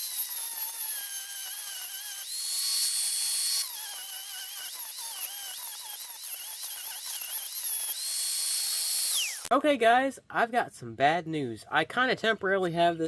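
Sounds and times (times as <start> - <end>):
high-speed power tool whining: 0.0 - 9.5.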